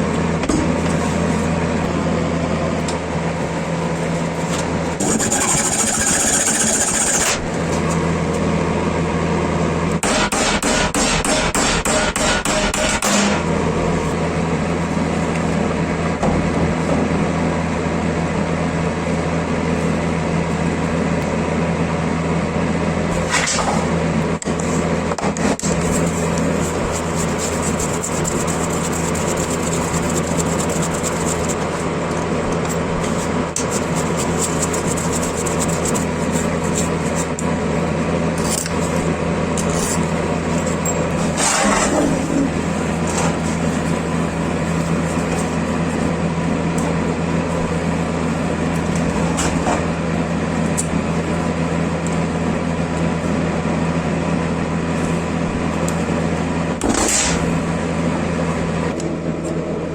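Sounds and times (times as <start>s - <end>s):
power tool motor humming: 5.0s - 7.5s
scraping sounds: 25.6s - 31.9s, 33.0s - 37.4s.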